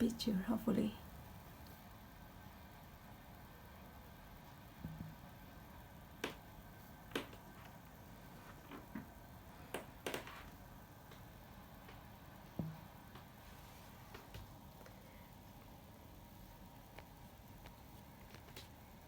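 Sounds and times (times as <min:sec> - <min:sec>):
faint background noise: 0:00.0 - 0:19.0
sharp clicks and taps: 0:06.2 - 0:06.4.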